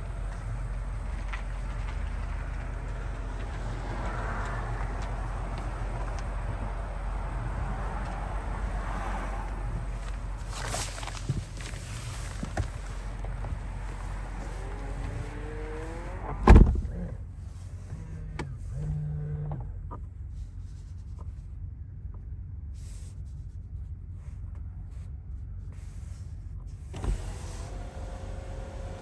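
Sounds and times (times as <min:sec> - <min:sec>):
low motor hum: 0:00.0 - 0:22.7, 0:23.6 - 0:29.0
loud thump: 0:16.3 - 0:17.0
electric motor whining: 0:27.0 - 0:29.0.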